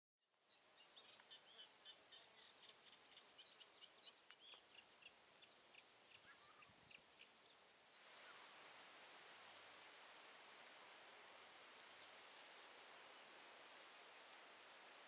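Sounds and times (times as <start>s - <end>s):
songbird chirping: 0.3s - 8.6s
steady hiss: 0.3s - 15.0s.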